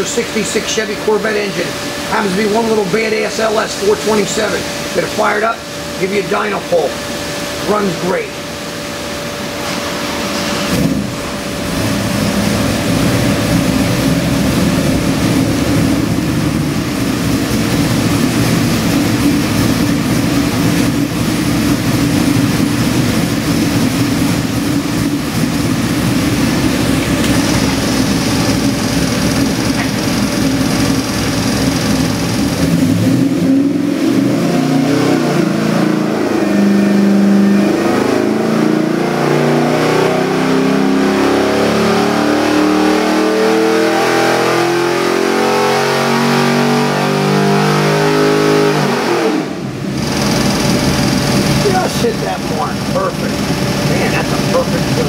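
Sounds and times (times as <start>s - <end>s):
engine idling: 0.0s - 34.4s, 49.6s - 55.0s
engine revving up: 10.3s - 55.0s.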